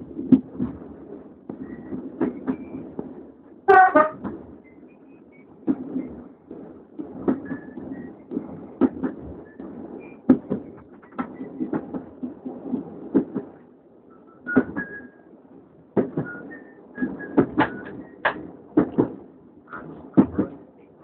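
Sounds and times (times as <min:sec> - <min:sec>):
wheels clacking on track: 0:00.0 - 0:15.2, 0:15.9 - 0:21.0
train rumbling: 0:00.0 - 0:21.0
faint wheel squeals: 0:07.4 - 0:08.2, 0:14.1 - 0:15.3.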